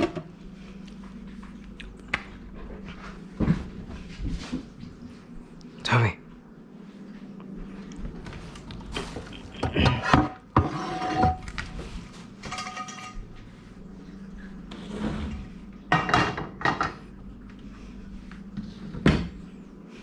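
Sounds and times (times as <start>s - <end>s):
dishes and utensils clinking: 12.4s - 13.2s.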